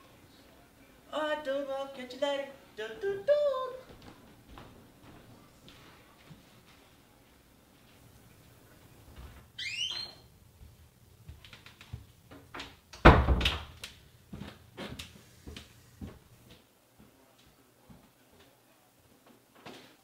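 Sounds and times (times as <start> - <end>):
door hinge squeaking: 9.6 - 10.3
door shutting with heavy thud: 13.0 - 13.7.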